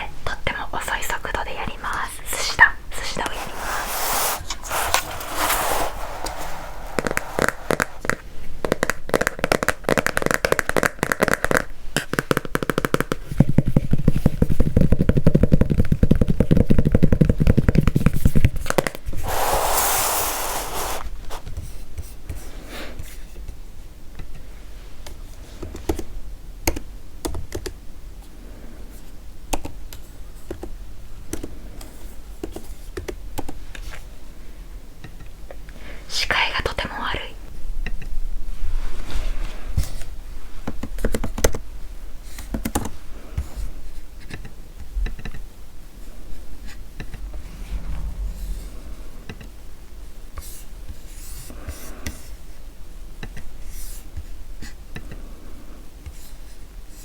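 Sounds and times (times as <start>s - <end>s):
short breathy hiss: 19.2s - 21.4s.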